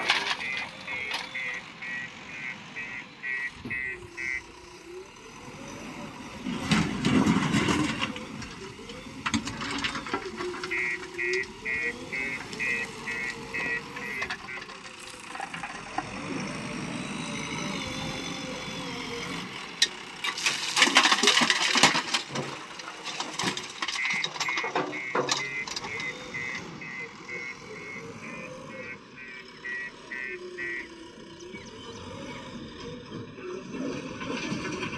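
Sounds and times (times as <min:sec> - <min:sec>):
reversing alarm beeping: 0:00.0 - 0:05.8, 0:08.7 - 0:15.0, 0:23.6 - 0:33.6
diesel engine running: 0:00.0 - 0:34.9.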